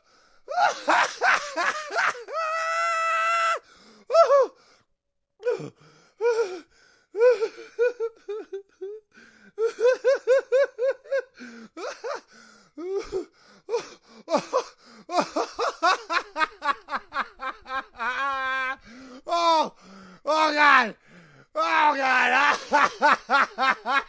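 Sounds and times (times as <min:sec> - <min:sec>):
man laughing: 0:00.6 - 0:02.4, 0:07.4 - 0:09.0, 0:09.6 - 0:12.2, 0:14.3 - 0:18.8, 0:21.9 - 0:24.0
short breaths: 0:09.1 - 0:09.6, 0:11.4 - 0:11.7, 0:12.3 - 0:15.1, 0:18.8 - 0:20.3, 0:21.0 - 0:21.5.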